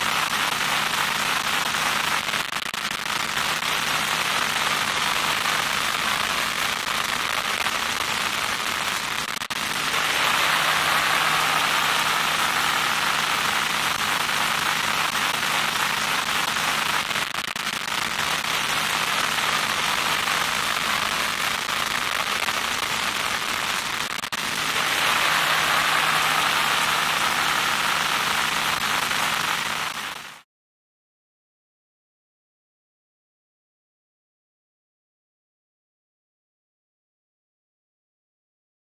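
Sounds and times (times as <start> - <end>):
static hiss: 0.0 - 30.4.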